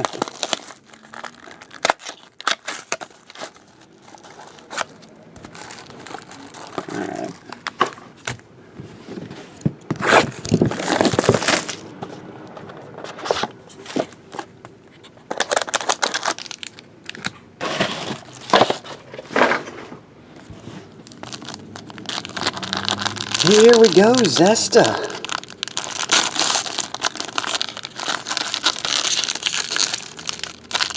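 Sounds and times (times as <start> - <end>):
plastic foil wrappers tearing: 0.0 - 7.7, 15.3 - 17.2, 21.0 - 30.9.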